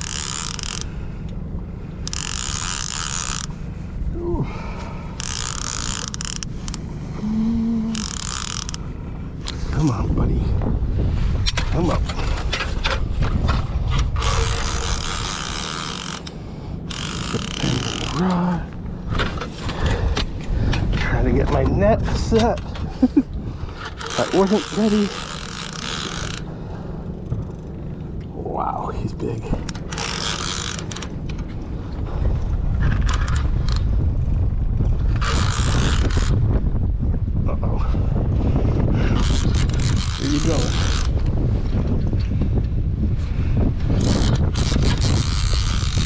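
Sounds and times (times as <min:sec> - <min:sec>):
fishing reel clicking: 0:00.0 - 0:01.0, 0:02.0 - 0:03.6, 0:05.2 - 0:09.6, 0:14.2 - 0:18.6, 0:23.8 - 0:26.5, 0:29.7 - 0:31.1, 0:33.0 - 0:33.8, 0:35.2 - 0:36.4, 0:39.2 - 0:41.3, 0:43.9 - 0:46.0
reel hissing buzz: 0:00.0 - 0:03.8, 0:05.0 - 0:09.0, 0:14.2 - 0:18.8, 0:23.9 - 0:26.7, 0:29.9 - 0:31.1, 0:35.2 - 0:36.4, 0:39.1 - 0:41.2, 0:44.0 - 0:46.0
wind buffeting microphone: 0:00.0 - 0:46.0.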